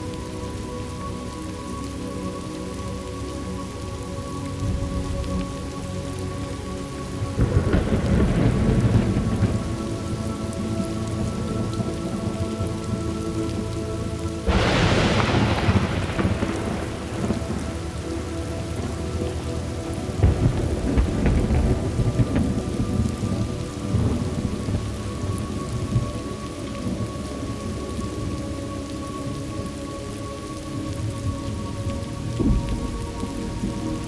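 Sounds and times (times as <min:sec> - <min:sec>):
steady rain: 0:00.0 - 0:34.0
thunder rumbling and cracking: 0:07.2 - 0:28.6, 0:30.9 - 0:34.0.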